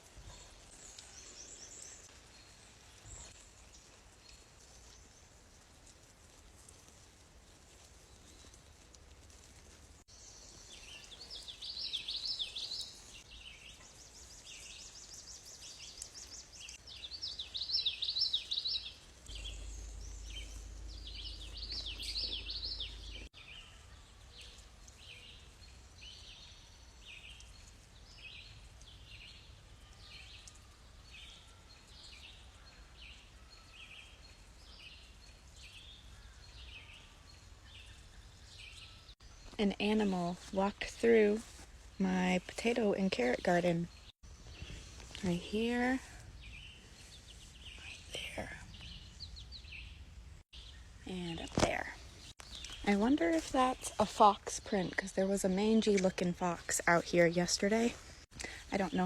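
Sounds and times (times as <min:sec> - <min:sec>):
songbirds singing: 0:00.0 - 0:59.0
low steady rumble: 0:19.1 - 0:23.4.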